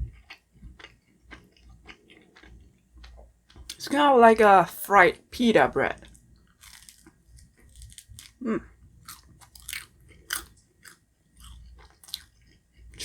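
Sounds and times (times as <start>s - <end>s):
crunchy chewing: 0.0s - 3.8s, 6.0s - 8.4s, 9.0s - 13.0s.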